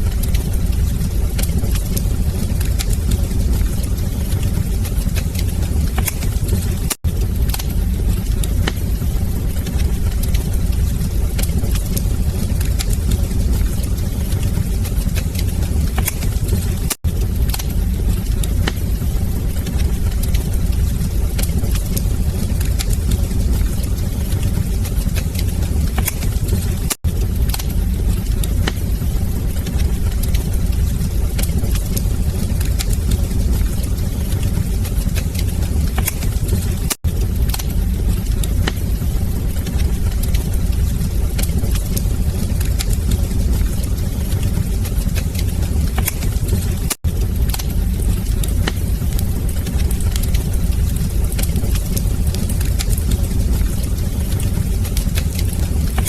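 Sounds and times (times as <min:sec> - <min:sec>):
fire crackling and popping: 0:00.0 - 0:56.0
fire rumbling in fireplace: 0:00.0 - 0:56.0.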